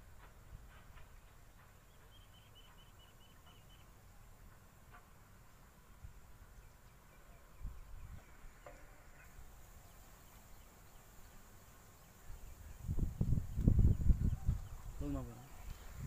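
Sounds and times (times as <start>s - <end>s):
small bird chirps: 1.8s - 4.0s.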